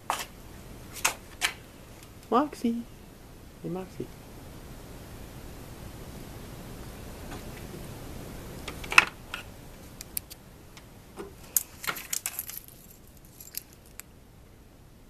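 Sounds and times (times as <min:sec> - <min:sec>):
light metallic jingling: 0:11.5 - 0:14.0.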